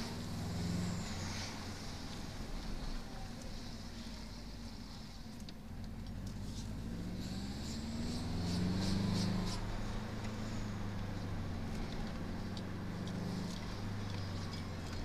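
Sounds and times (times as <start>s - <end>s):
car engine revving under load: 0.0s - 2.8s, 5.9s - 15.0s
light ticks: 11.7s - 15.0s.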